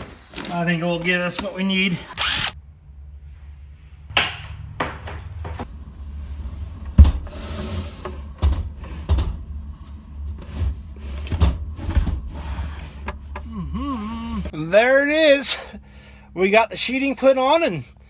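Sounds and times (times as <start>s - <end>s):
steady low rumble: 2.2s - 14.8s
knocks and thuds: 6.9s - 7.3s.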